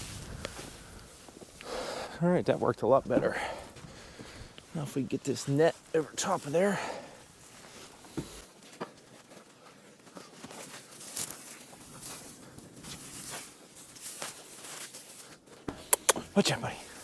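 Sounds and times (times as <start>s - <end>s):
netting and hay rustling: 0.0s - 17.0s
short soft knocks: 7.9s - 8.4s.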